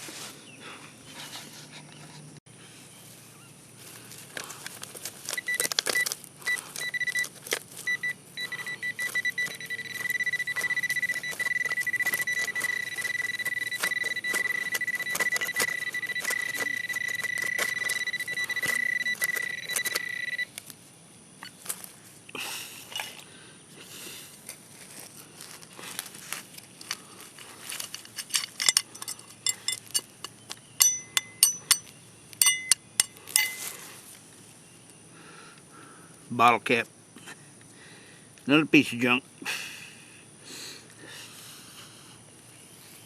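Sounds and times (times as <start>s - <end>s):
metal detector high beep: 5.3s - 20.5s, 30.8s - 33.7s
clicks and scrapes: 8.9s - 20.4s.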